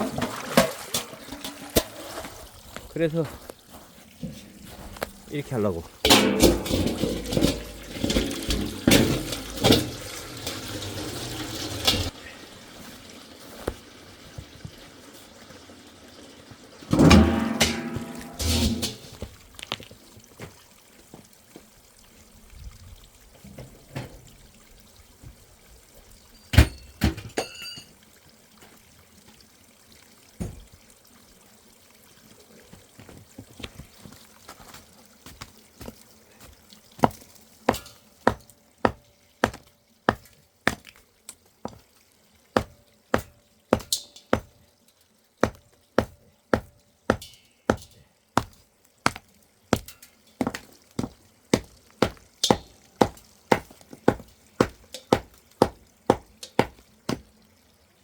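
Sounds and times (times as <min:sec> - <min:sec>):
scattered knocks and clatter: 0:06.1 - 0:10.7, 0:49.8 - 0:57.2
sharp strikes: 0:17.0 - 0:18.9.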